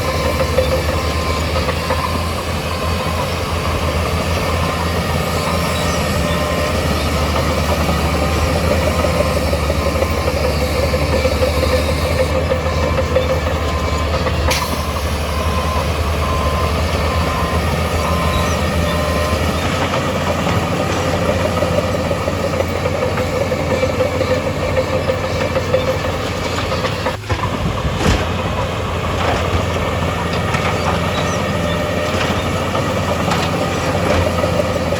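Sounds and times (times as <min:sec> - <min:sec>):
back-up alarm beeping: 0:00.0 - 0:27.2
heavy diesel machinery running: 0:00.0 - 0:34.9.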